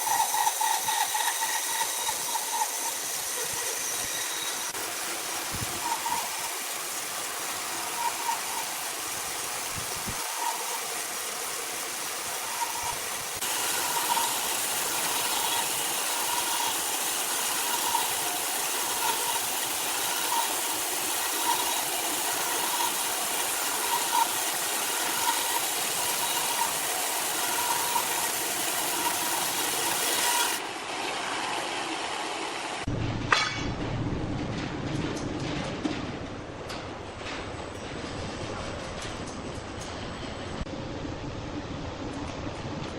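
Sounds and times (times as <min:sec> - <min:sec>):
machinery hissing: 0:00.0 - 0:32.9.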